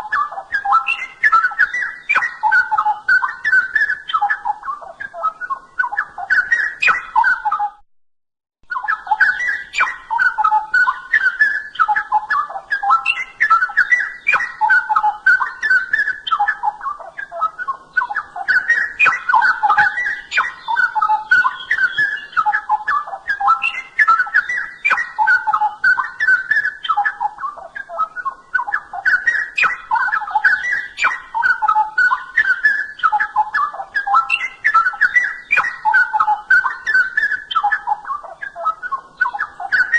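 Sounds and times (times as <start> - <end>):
bird singing warbled phrases: 0.0 - 7.8, 8.6 - 39.9.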